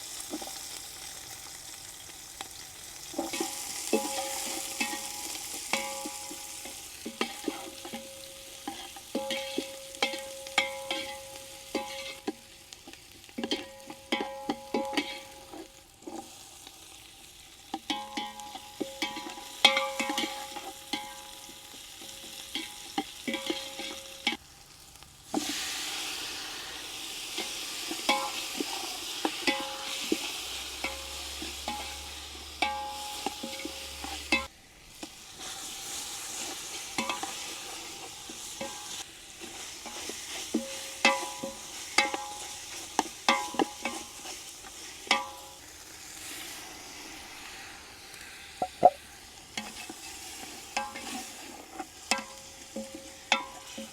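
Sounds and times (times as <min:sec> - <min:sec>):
food sizzling in hot oil: 0:00.0 - 0:53.9
utensil scraping a pot: 0:03.2 - 0:16.3, 0:27.3 - 0:34.5, 0:48.6 - 0:53.9.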